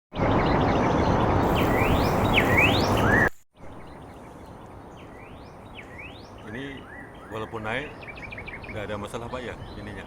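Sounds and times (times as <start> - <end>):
loud rushing noise: 1.1 - 3.3
bird rising whistles: 1.4 - 3.3.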